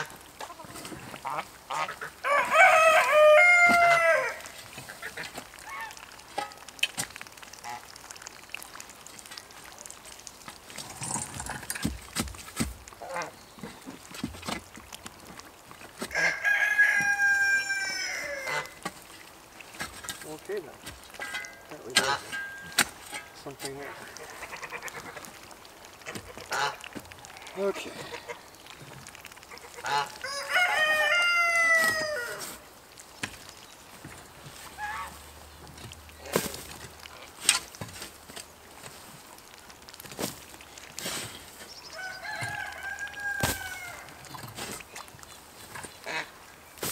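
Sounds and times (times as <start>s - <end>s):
rooster crowing: 2.2s - 4.4s, 16.1s - 18.6s, 30.2s - 32.5s, 41.9s - 44.2s.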